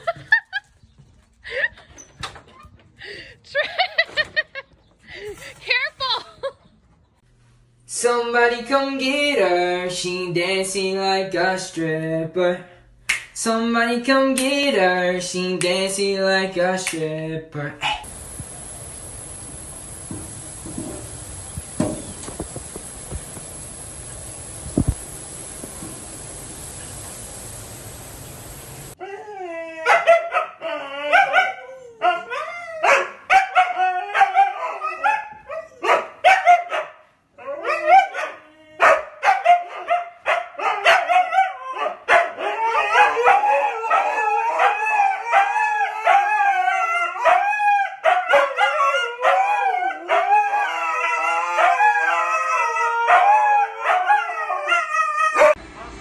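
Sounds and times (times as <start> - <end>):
dog howling and yapping: 28.9 - 36.7, 37.4 - 55.6.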